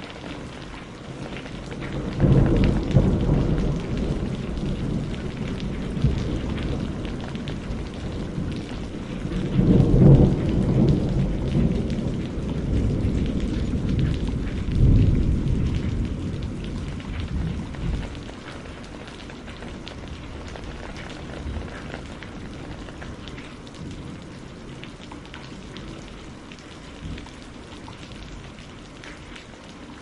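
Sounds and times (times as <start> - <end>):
rain pattering on a roof: 0.0 - 30.0
thunder rolling: 1.8 - 24.8.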